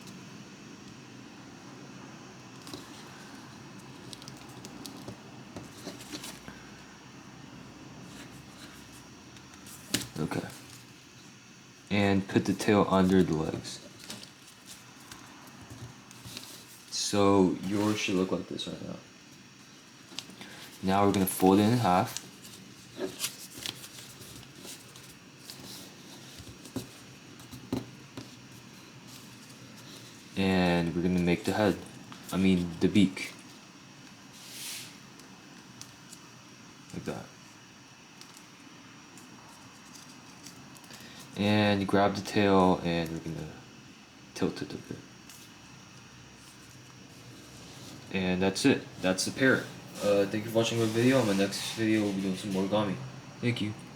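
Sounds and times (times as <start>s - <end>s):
faint steady hiss: 0.0s - 53.9s
paper being folded and creased: 20.1s - 33.4s, 49.0s - 52.7s.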